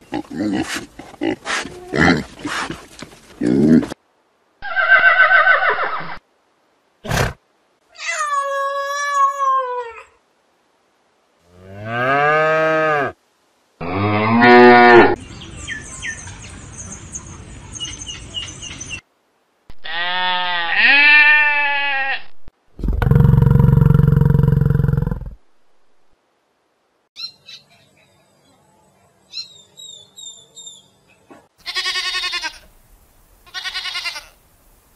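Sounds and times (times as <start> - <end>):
horse whinnying: 4.6 - 6.2.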